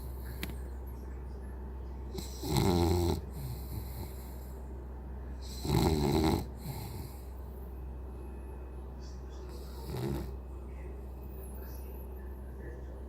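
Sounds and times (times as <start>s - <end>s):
steady low hum: 0.0s - 13.0s
dog snoring: 2.1s - 4.5s, 5.4s - 7.3s, 9.4s - 10.4s.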